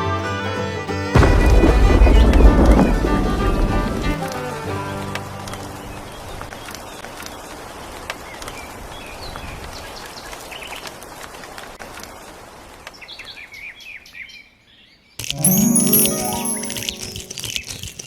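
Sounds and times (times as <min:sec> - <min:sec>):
loud chiming jingle: 0:15.2 - 0:17.7.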